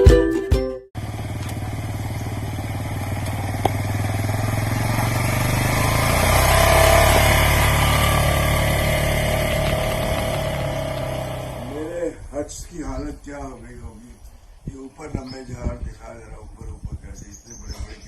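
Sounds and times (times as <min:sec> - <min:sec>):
ukulele music: 0:00.0 - 0:01.0
vehicle engine rumbling: 0:01.0 - 0:18.0.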